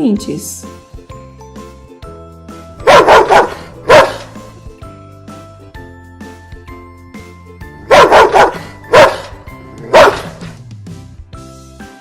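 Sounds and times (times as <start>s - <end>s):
light background music: 0.0s - 12.0s
dog barking: 2.8s - 4.4s, 7.9s - 10.6s.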